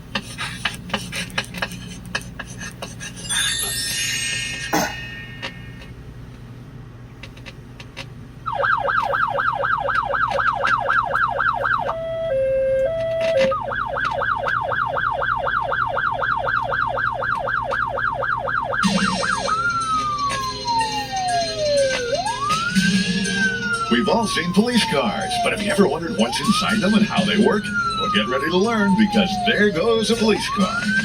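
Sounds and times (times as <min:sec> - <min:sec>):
police siren: 0:08.5 - 0:31.0.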